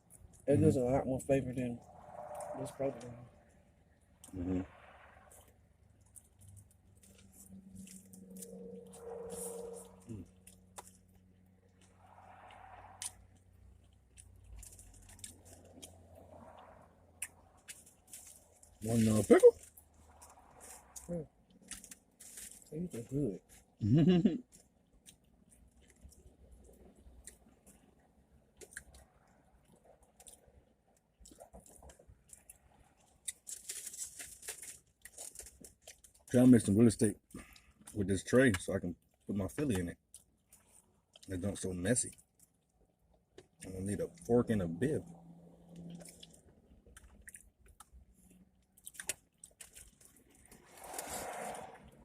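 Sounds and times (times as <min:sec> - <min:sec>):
person chewing: 0:05.3 - 0:11.2, 0:13.0 - 0:21.1, 0:24.4 - 0:36.3, 0:45.7 - 0:51.5.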